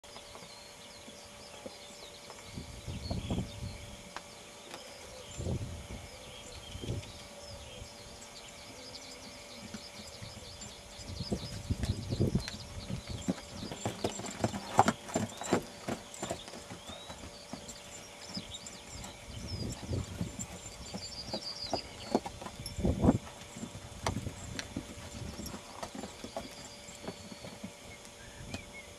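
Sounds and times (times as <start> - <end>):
small birds chirping: 0.0 - 28.9
horse hooves thudding: 9.2 - 28.8.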